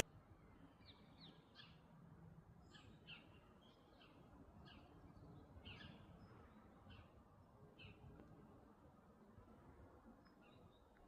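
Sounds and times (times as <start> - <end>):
background hiss: 0.0 - 0.9.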